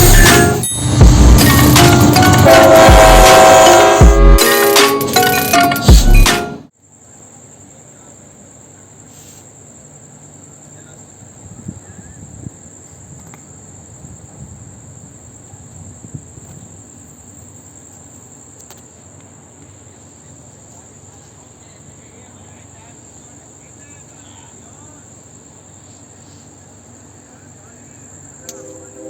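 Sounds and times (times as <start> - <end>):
low rumble: 0.0 - 3.3
loud music: 0.0 - 6.7
crickets trilling: 6.7 - 29.0.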